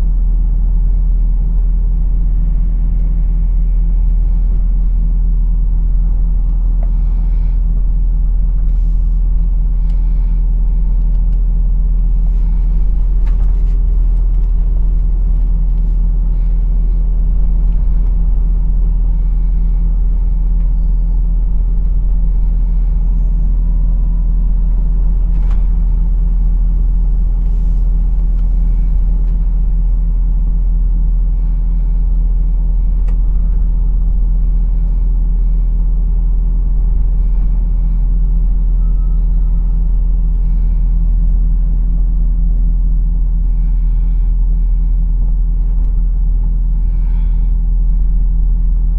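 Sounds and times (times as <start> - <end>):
truck engine rumble: 0.0 - 48.9
road noise: 2.6 - 23.6.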